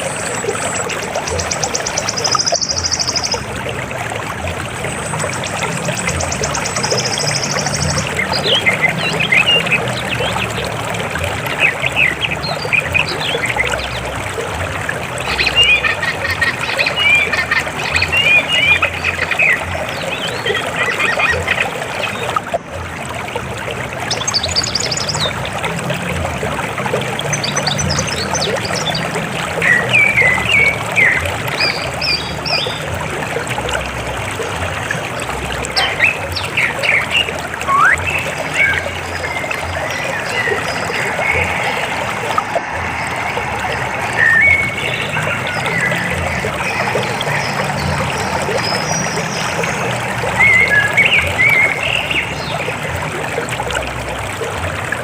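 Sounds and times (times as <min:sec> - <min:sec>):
birds chirping: 0:00.0 - 0:03.5, 0:04.8 - 0:14.2, 0:15.2 - 0:22.5, 0:34.9 - 0:52.8
river water flowing: 0:00.0 - 0:55.0.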